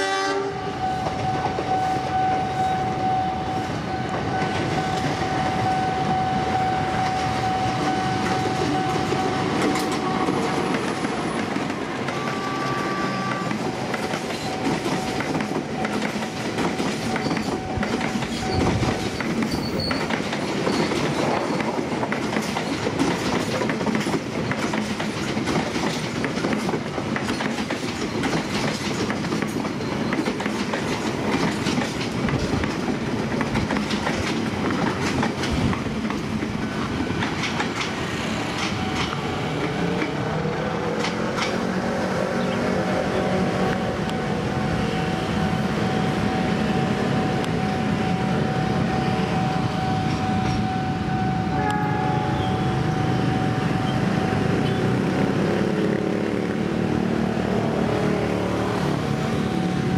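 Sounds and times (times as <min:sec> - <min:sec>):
diesel locomotive hauling train: 0:00.0 - 0:59.9
electric train passing: 0:00.0 - 0:59.9
steady high tone: 0:00.6 - 0:13.6, 0:43.2 - 0:54.8.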